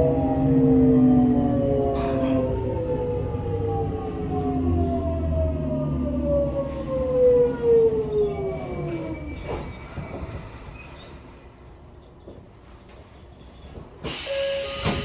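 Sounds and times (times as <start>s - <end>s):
train rolling and brakes: 0.0s - 15.0s
train inverter whining: 13.6s - 15.0s.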